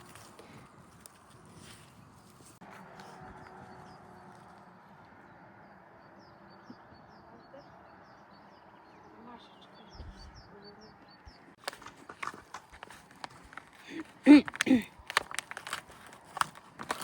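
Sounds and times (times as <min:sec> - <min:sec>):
songbird chirping: 0:03.2 - 0:13.4.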